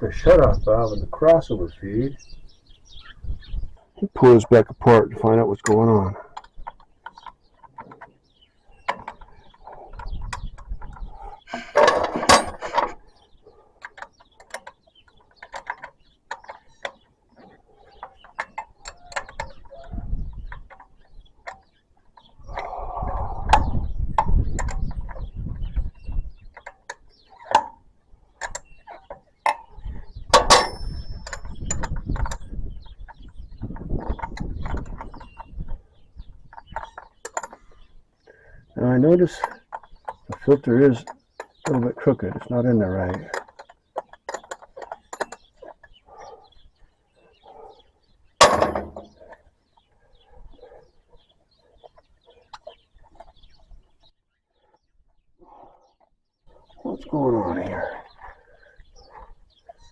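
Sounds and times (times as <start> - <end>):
metal tools clicking and clinking: 11.5 - 13.0, 30.3 - 32.4, 48.4 - 49.4
metal clank with ring: 30.4 - 31.6, 48.4 - 49.2
metallic clicks of hand tools: 30.4 - 32.4.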